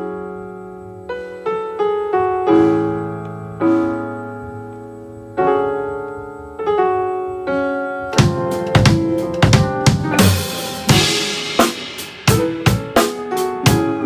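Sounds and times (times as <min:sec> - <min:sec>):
piano playing slow chords: 0:00.0 - 0:14.0
drum kit hits: 0:08.1 - 0:14.0
cymbal crashes: 0:10.1 - 0:13.3.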